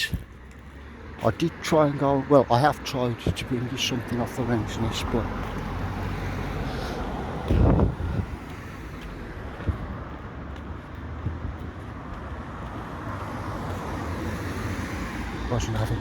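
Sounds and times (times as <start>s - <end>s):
distant road traffic: 0.0s - 16.0s
wind buffeting microphone: 7.0s - 13.2s
dull low thump: 7.4s - 8.4s, 9.5s - 10.2s.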